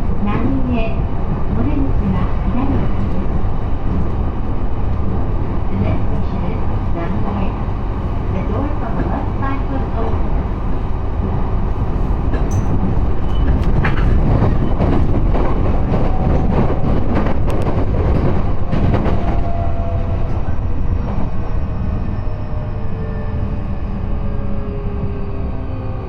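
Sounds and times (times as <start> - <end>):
train rumble: 0.0 - 26.0
wheels rattling and clicking on track: 8.0 - 21.5.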